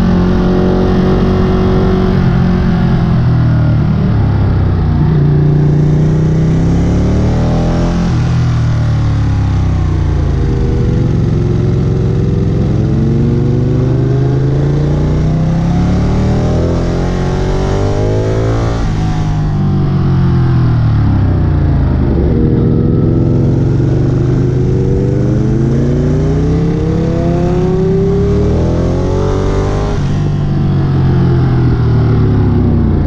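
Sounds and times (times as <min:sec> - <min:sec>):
wind noise: 0:00.0 - 0:08.7
motorcycle engine revving: 0:00.0 - 0:33.0.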